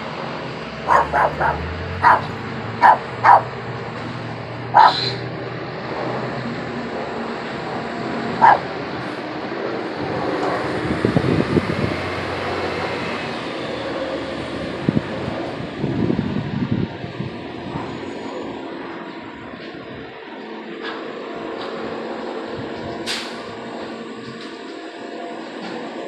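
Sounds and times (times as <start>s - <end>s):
helicopter overhead: 0.0s - 26.0s
dog barking: 0.8s - 3.6s, 4.7s - 5.2s, 8.4s - 8.7s.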